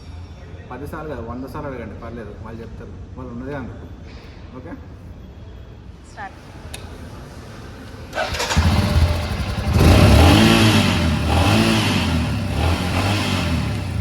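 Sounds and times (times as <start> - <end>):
electric starter cranking: 8.1 - 10.7
motorcycle engine revving: 8.1 - 14.0.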